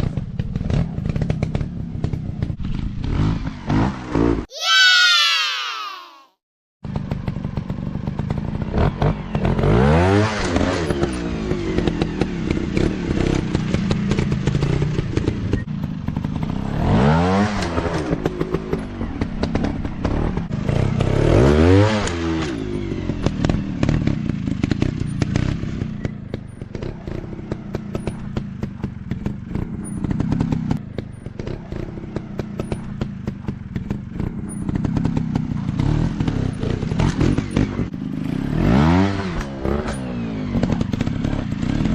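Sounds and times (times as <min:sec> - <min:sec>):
dirt bike engines revving: 0:16.2 - 0:41.9.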